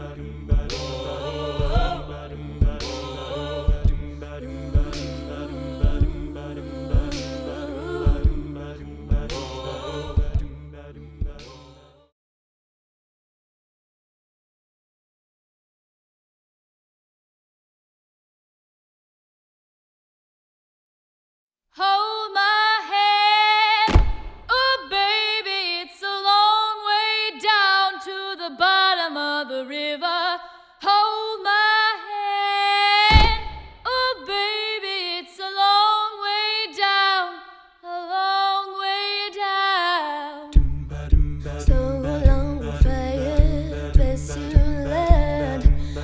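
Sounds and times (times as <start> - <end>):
woman singing a cappella: 0.0 - 10.4, 21.8 - 40.6, 41.4 - 46.0
sung bass line: 0.0 - 11.5, 40.6 - 46.0
deep low thump: 0.5 - 0.9, 1.6 - 3.1, 3.7 - 4.2, 4.8 - 5.1, 5.8 - 6.3, 6.9 - 7.3, 8.1 - 8.5, 9.1 - 10.6, 11.2 - 11.5, 23.9 - 24.5, 33.1 - 33.9, 40.6 - 46.0
rhythmic percussion: 0.5 - 4.1, 4.8 - 6.4, 7.0 - 10.5.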